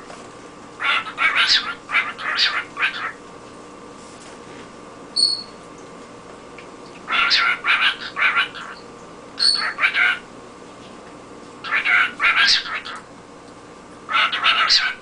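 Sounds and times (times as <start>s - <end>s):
cockatiel chattering: 0.8s - 3.2s, 7.1s - 8.8s, 9.4s - 10.2s, 11.6s - 13.0s, 14.1s - 15.0s
cockatiel whistling: 5.2s - 5.5s, 9.4s - 9.8s.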